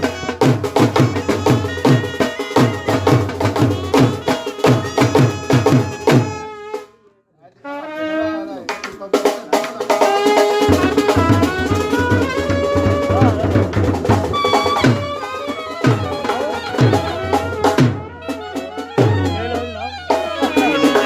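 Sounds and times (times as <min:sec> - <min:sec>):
brass band melody: 0:00.0 - 0:07.0, 0:07.6 - 0:09.1, 0:09.8 - 0:21.0
fast dense drumming: 0:09.3 - 0:18.2.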